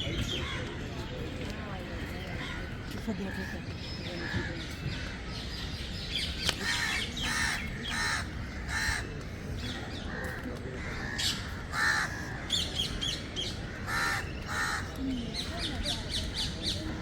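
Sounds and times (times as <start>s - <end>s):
crows cawing: 6.6s - 12.7s, 13.6s - 14.9s.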